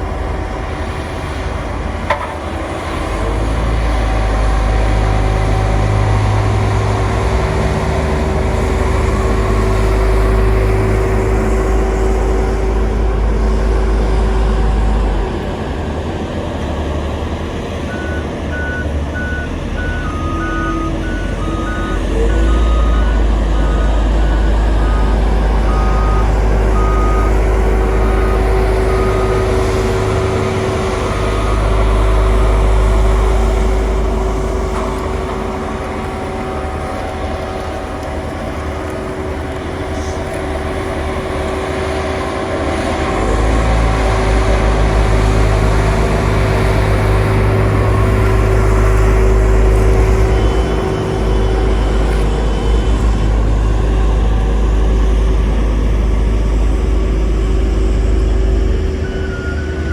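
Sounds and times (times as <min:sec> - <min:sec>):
heavy machinery diesel engines rumbling: 0:00.0 - 0:59.9
high-pitched beeping: 0:17.9 - 0:33.2
reversing alarm beeping: 0:17.9 - 0:39.2, 0:46.2 - 0:55.3, 0:56.4 - 0:59.9.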